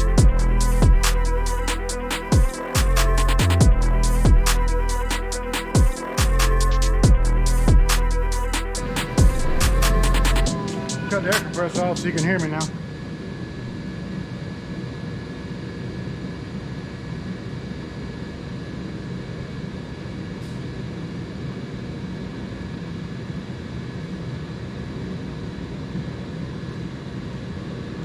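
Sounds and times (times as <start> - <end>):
air compressor running: 0.0 - 12.6.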